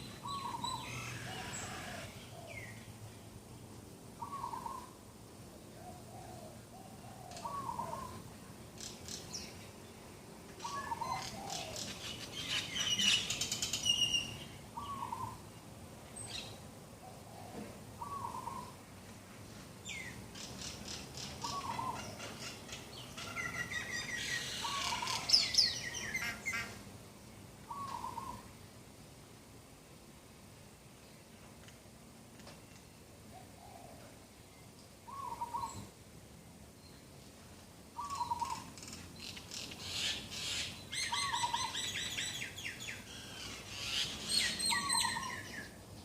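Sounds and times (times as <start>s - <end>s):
birds rapid high chirping: 19.9s - 26.8s, 38.0s - 46.0s.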